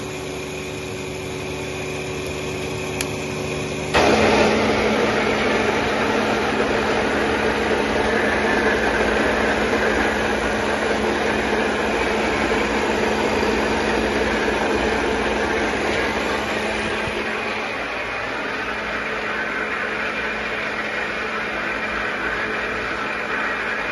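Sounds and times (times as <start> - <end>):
electric pump running with hiss: 0.0 - 23.9.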